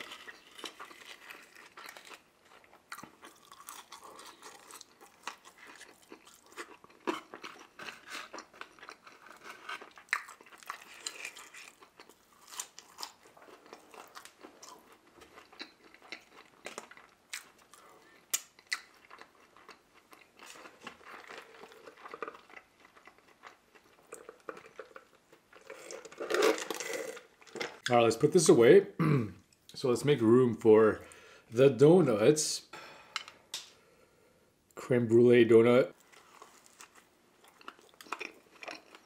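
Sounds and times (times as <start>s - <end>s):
chewing and crunching food: 0.0s - 27.9s, 36.0s - 39.0s.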